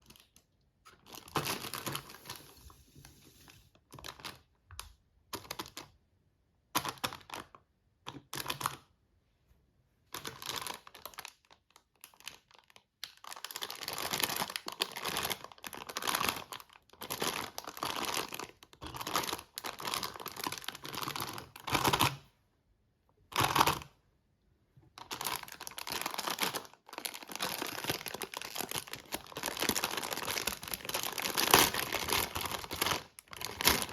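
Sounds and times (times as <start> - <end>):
packaging crinkling and tearing: 1.0 - 2.6, 10.2 - 22.2, 25.0 - 33.9.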